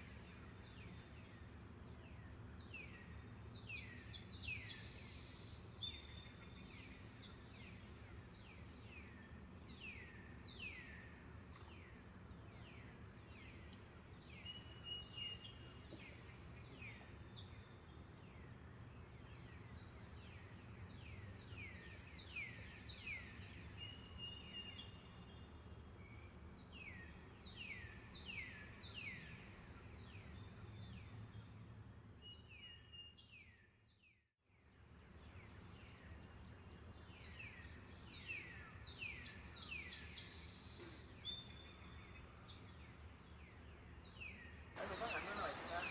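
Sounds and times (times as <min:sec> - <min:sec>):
birds calling: 0:44.8 - 0:45.9
flowing water hiss: 0:44.8 - 0:45.9.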